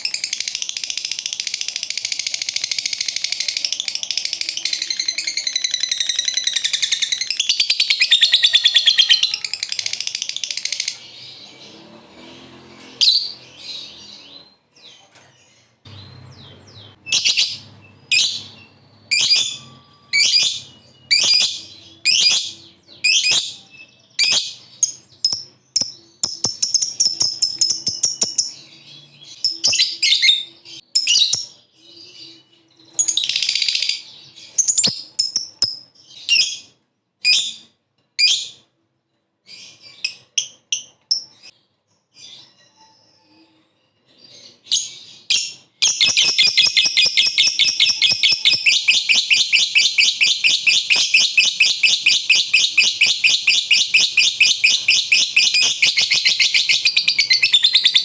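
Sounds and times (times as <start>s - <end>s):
lovebird shrill chirps: 0.0s - 11.0s, 17.1s - 32.3s, 44.8s - 58.0s.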